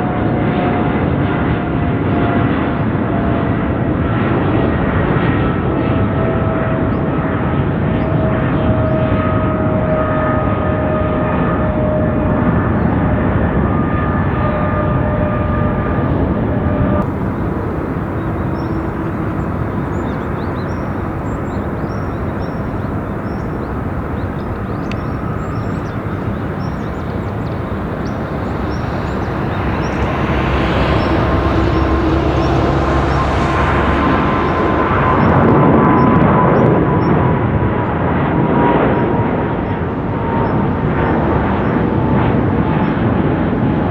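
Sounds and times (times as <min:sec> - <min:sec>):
jet engines running: 0:06.0 - 0:37.2.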